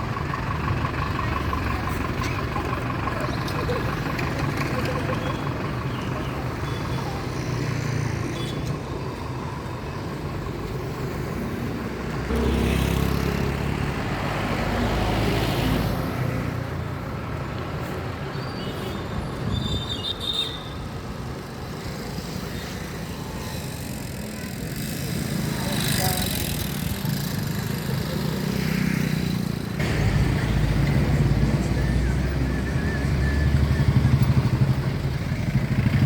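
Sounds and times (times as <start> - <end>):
road traffic rumble: 0.0 - 36.0
heavy vehicle passing close: 23.6 - 36.0.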